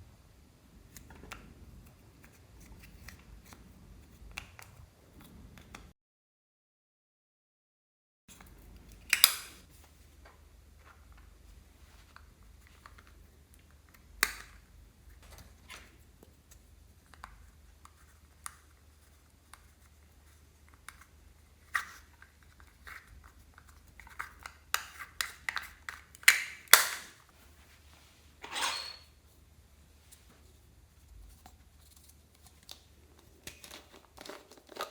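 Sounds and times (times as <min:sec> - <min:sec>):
hands handling supplies clicking: 0:23.6 - 0:27.2.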